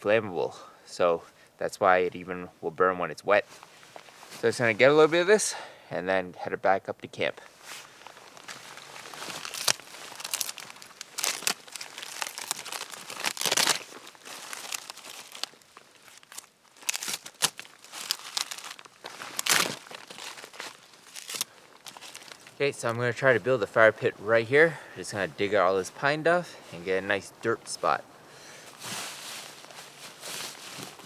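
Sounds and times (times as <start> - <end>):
bark being peeled and torn: 8.3 - 22.6.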